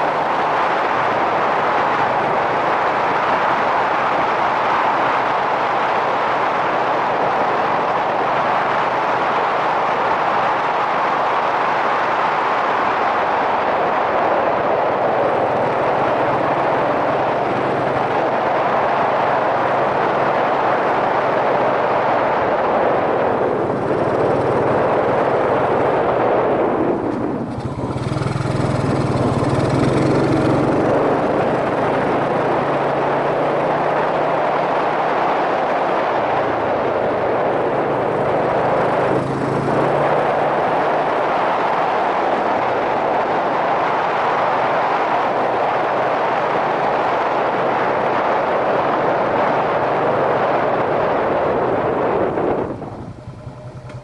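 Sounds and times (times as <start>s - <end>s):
wind rush on microphone: 0.0s - 54.0s
motorcycle engine running: 14.3s - 44.5s, 45.3s - 54.0s.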